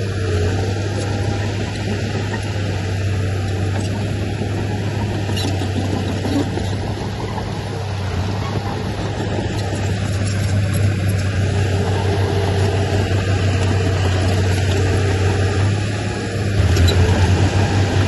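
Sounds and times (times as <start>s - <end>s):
diesel engine low drone: 0.0s - 18.0s.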